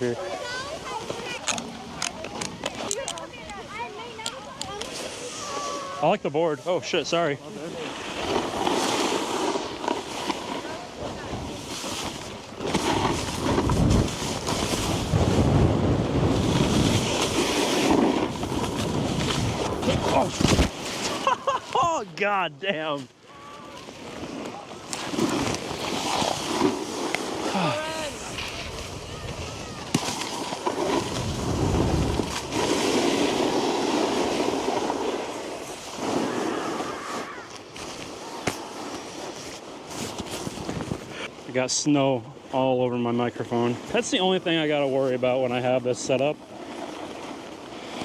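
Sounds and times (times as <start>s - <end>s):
snowboard scraping over snow: 0.0s - 42.2s, 42.8s - 48.0s
wind on microphone: 12.9s - 20.7s, 25.5s - 35.0s
wind buffeting microphone: 27.3s - 34.8s.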